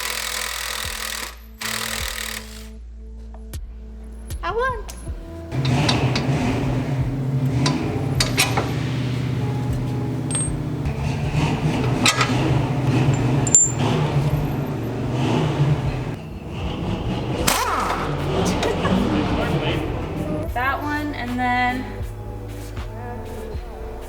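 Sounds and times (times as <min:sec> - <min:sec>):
metal tools clinking and scraping: 0:05.5 - 0:16.5
low machine hum: 0:05.5 - 0:20.8.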